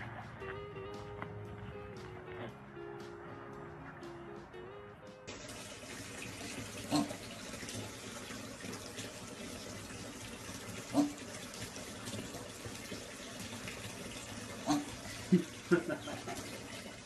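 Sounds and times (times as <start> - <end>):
water running into bathtub: 5.3 - 17.0.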